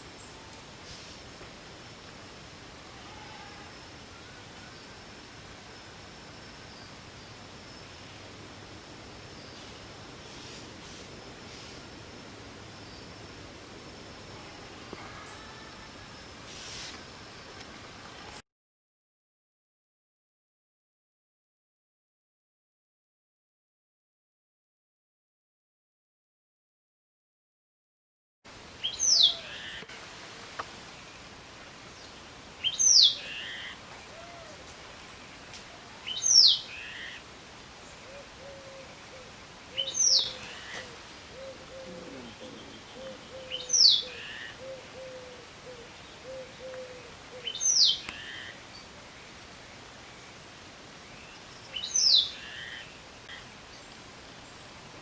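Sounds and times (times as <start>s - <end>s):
background hiss: 0.0s - 18.4s, 28.5s - 55.0s
bird whistling call: 28.8s - 29.8s, 39.8s - 45.4s.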